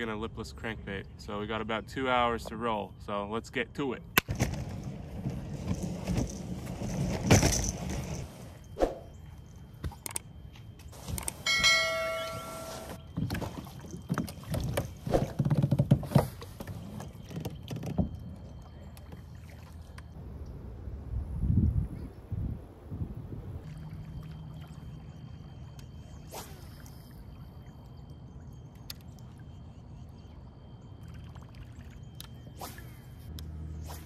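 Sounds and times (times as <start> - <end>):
bell-like chime: 11.4 - 13.1
knocks and scrapes on kayak hull: 12.7 - 18.4.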